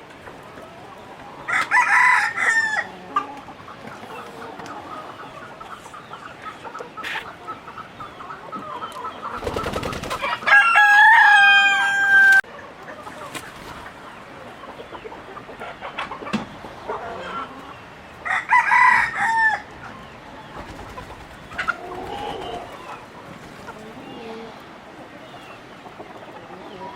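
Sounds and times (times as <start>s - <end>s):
chickens clucking: 0.0s - 26.9s
rooster crowing: 1.5s - 3.0s, 10.2s - 12.4s, 18.2s - 19.7s.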